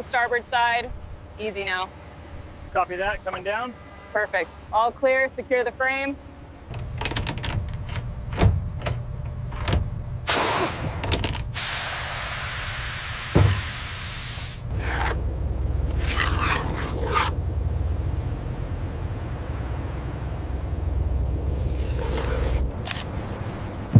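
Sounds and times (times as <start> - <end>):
low steady rumble: 0.0 - 23.9
sharp clicks and knocks: 6.7 - 9.9
hiss of escaping air: 10.3 - 10.9, 11.6 - 14.7.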